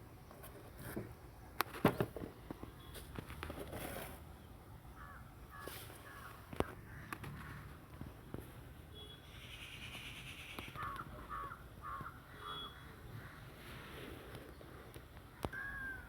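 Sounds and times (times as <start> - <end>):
birds calling: 9.0 - 13.6.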